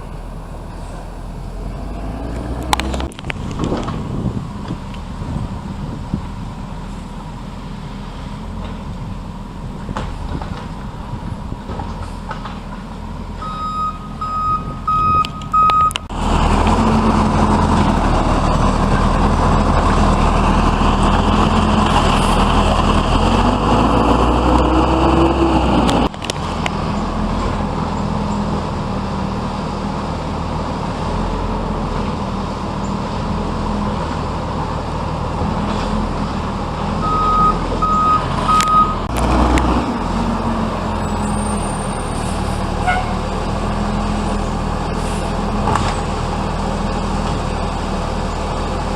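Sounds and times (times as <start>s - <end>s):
diesel engine idling: 0.0s - 9.9s, 12.9s - 29.3s
engine revving loud: 1.4s - 4.0s, 16.1s - 27.6s, 37.0s - 46.0s
backup alarm beeping: 13.4s - 16.1s, 37.0s - 39.1s.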